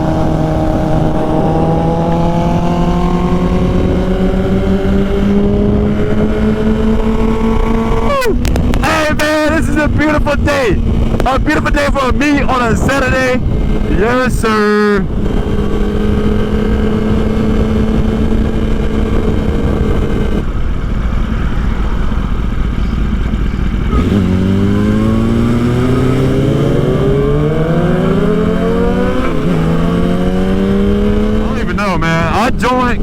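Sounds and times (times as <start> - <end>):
motorcycle engine accelerating: 0.0 - 33.0
wind rush: 0.0 - 33.0.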